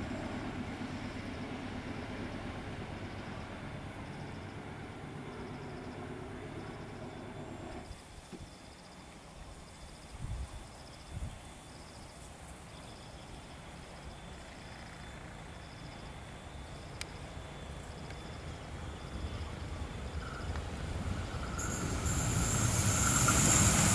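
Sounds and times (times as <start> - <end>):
train rumble: 0.0 - 8.2, 13.3 - 23.9
insect chirping: 7.8 - 23.9.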